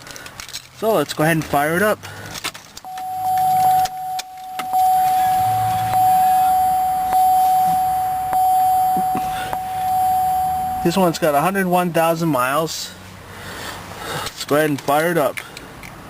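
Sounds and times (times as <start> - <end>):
car warning chime: 2.8 - 12.1
chime click: 2.9 - 11.2.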